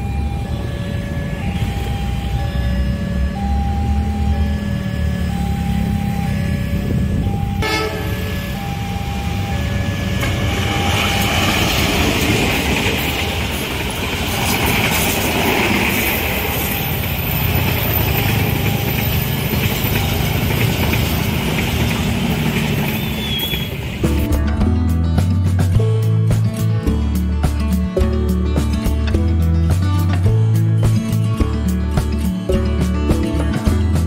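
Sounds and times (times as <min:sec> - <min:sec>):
level crossing warning bell: 0:00.0 - 0:24.3
idling engines rumble: 0:00.0 - 0:30.4
train wheels on rails: 0:07.0 - 0:24.3.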